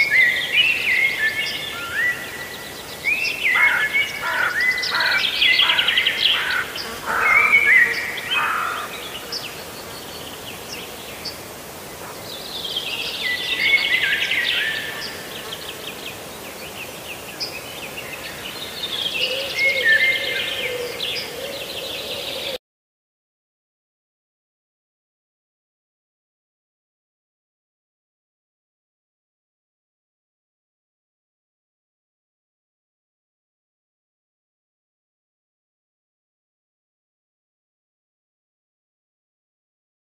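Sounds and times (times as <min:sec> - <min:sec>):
birds chirping and trilling: 0:00.0 - 0:22.6.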